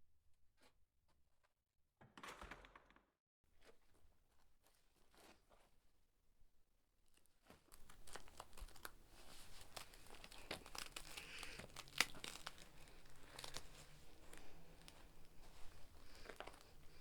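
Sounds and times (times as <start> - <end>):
crinkling and crackling: 3.6 - 5.8, 7.1 - 17.0.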